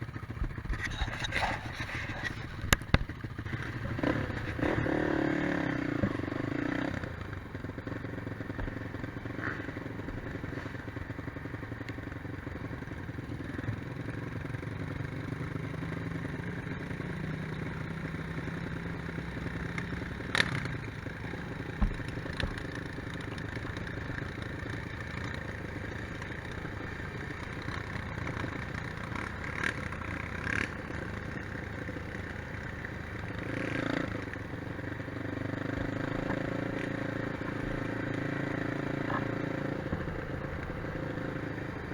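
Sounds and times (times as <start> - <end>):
quad bike engine running: 0.0 - 41.9
sharp knocks and clatter: 21.8 - 23.3.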